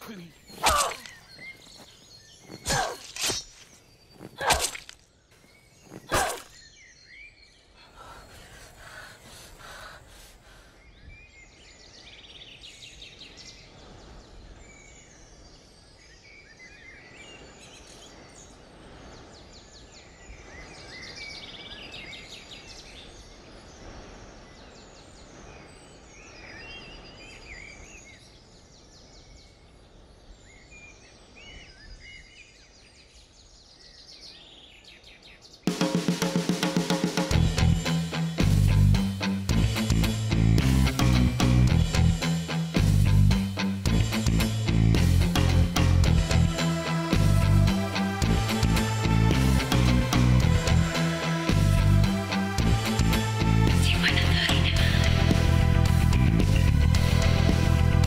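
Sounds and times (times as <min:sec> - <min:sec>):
small birds chirping and singing: 0:00.0 - 0:35.7
outdoor background hiss: 0:05.0 - 0:54.7.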